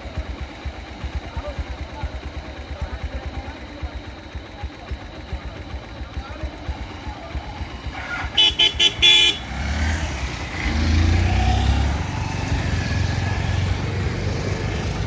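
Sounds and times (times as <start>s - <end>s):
motorcycle engines running: 0.0s - 15.0s
vehicle horn tooting: 8.2s - 9.6s.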